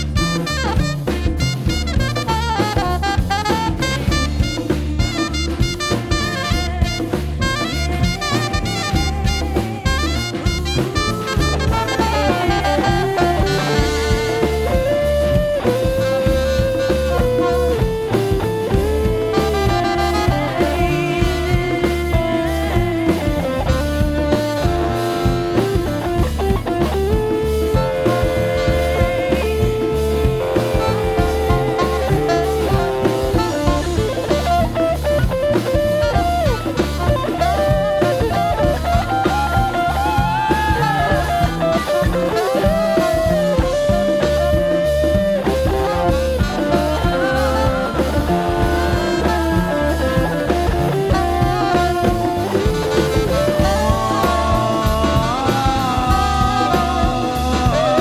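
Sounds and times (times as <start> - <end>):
bass guitar: 0.0 - 58.0
drum kit: 0.0 - 58.0
lead guitar melody: 0.0 - 58.0.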